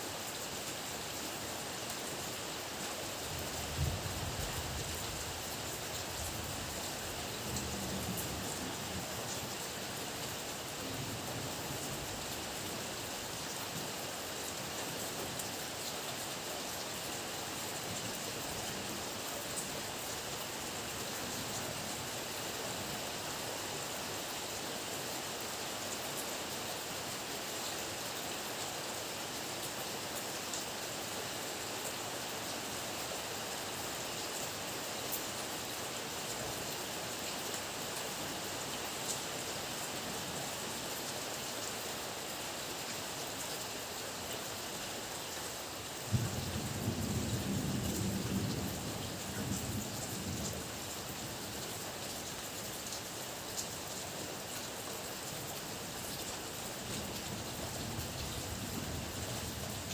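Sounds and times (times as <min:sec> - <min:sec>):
heavy rain: 0:00.0 - 0:59.9
low thunder rumble: 0:46.1 - 0:51.0.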